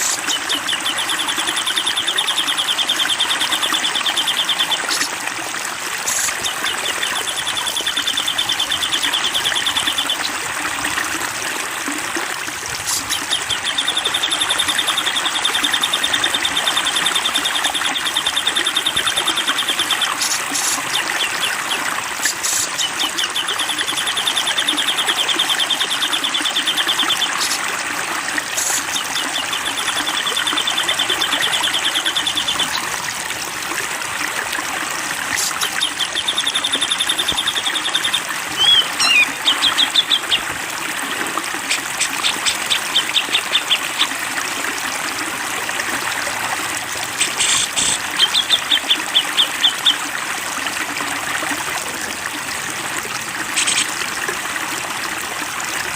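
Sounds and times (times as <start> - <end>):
songbird trilling: 0.0 - 5.1, 6.1 - 10.4, 12.9 - 21.8, 22.4 - 27.6, 28.6 - 32.9, 35.4 - 40.5
flowing water rushing: 0.0 - 55.9.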